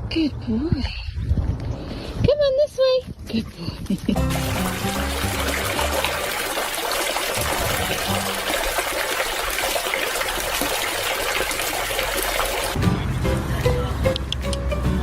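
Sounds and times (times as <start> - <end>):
running water trickling: 4.2 - 12.8.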